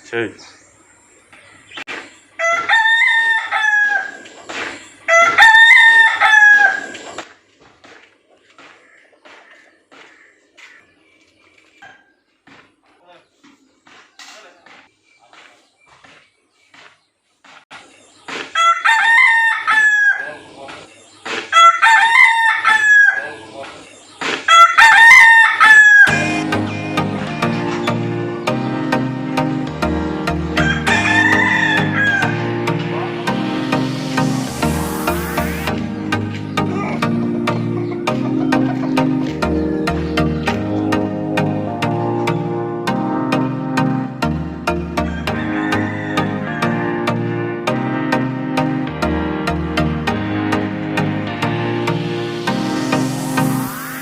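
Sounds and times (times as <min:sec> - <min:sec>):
rooster crowing: 0:02.4 - 0:04.3, 0:05.1 - 0:07.0, 0:18.6 - 0:20.4, 0:21.5 - 0:23.4, 0:24.5 - 0:26.4, 0:30.3 - 0:33.2, 0:44.7 - 0:47.1
music: 0:26.1 - 0:54.0.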